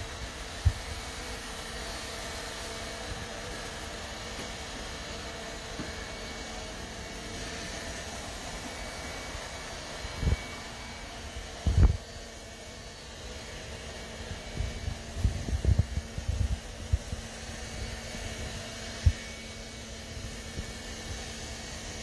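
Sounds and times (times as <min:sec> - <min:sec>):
robot vacuum cleaner whirring: 0:00.0 - 0:22.0.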